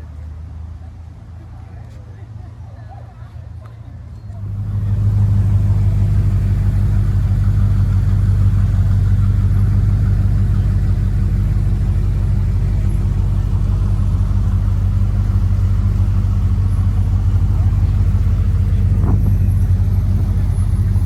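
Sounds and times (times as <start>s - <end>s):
car engine idling: 4.0s - 21.0s.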